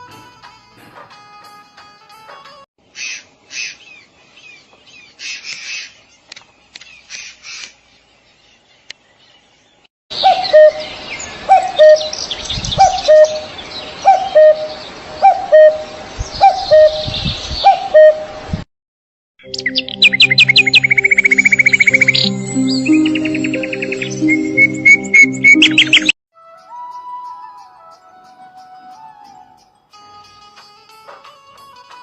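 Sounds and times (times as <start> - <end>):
birds chirping: 2.8 - 18.2, 19.4 - 26.2
low bird call: 12.8 - 17.0.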